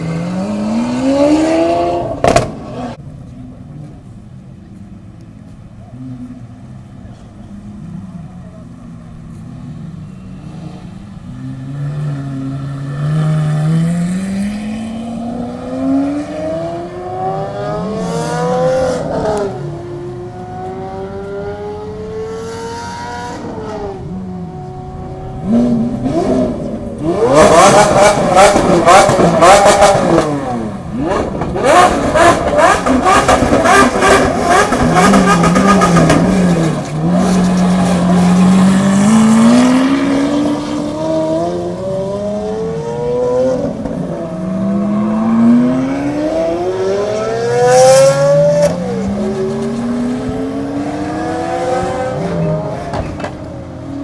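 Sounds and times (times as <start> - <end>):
supercar engine revving: 0.0 - 4.7, 5.4 - 54.0
exhaust crackles and pops: 2.2 - 4.0, 27.0 - 39.5.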